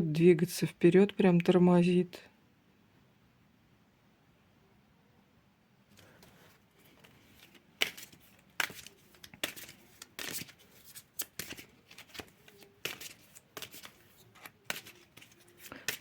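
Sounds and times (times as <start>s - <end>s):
cards being shuffled: 5.9s - 16.0s.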